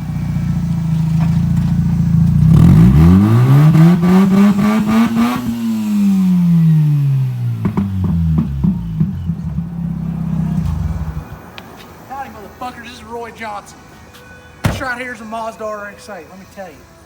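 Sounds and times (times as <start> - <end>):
rotary engine running and revving: 2.1 - 11.4.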